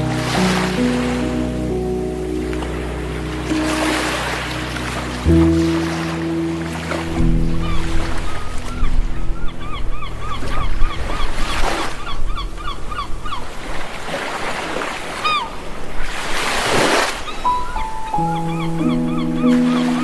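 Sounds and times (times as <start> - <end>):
low held music tones: 0.0 - 13.6
sea waves washing ashore: 0.0 - 20.0.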